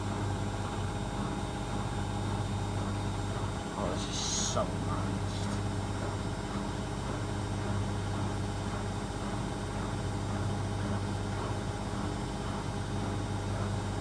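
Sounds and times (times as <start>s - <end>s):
washing machine spinning: 0.0s - 14.0s.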